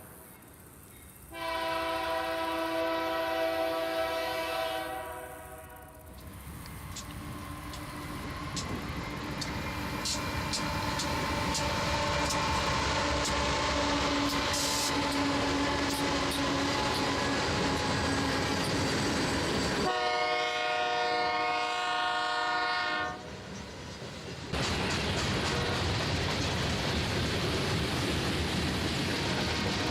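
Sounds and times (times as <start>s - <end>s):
freight train rumble: 0.0s - 29.9s
locomotive horn: 1.3s - 6.1s, 11.8s - 18.7s, 19.8s - 23.3s
train wheels clicking over rail joints: 5.8s - 19.9s, 23.2s - 29.9s.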